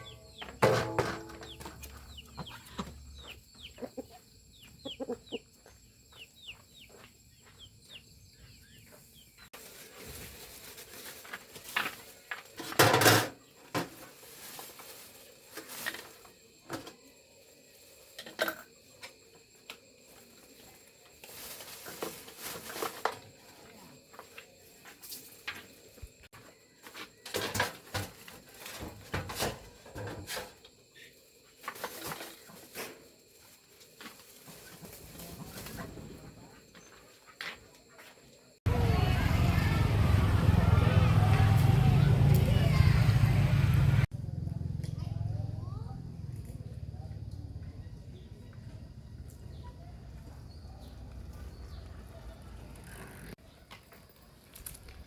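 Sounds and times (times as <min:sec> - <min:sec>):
bird clucking calls: 0:01.5 - 0:05.5.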